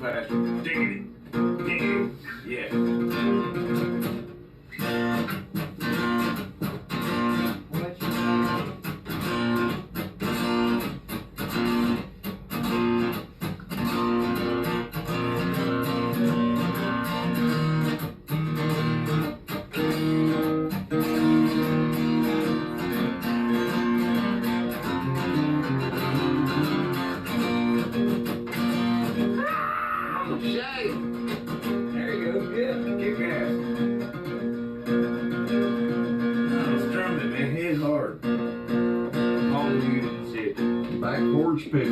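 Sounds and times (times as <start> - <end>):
guitar strumming chords: 0.0 - 41.9.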